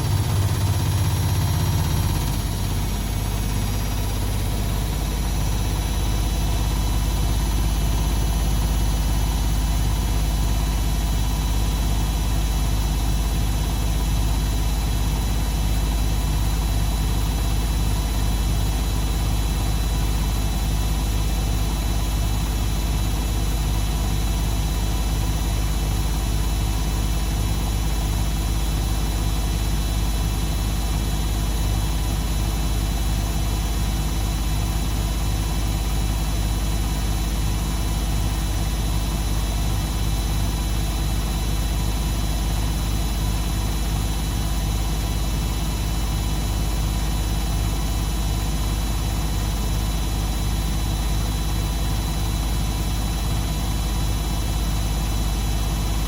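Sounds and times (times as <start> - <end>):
washing machine running: 0.0 - 56.0.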